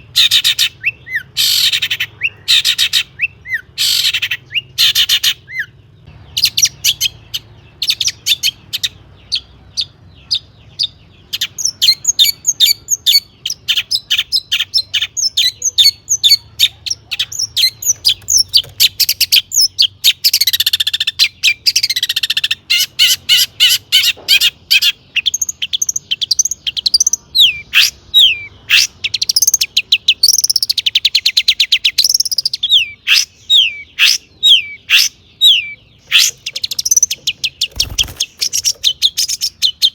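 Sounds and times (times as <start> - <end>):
bird chirps and whistles: 10.3 - 39.9.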